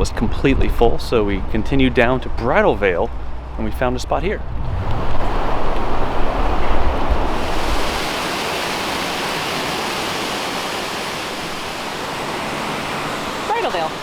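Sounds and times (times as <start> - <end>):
low rumble: 3.3 - 7.9
waterfall roaring: 4.7 - 14.0.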